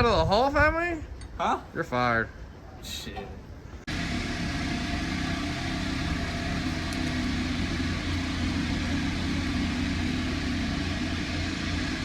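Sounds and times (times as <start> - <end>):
engine running steadily: 3.8 - 12.0.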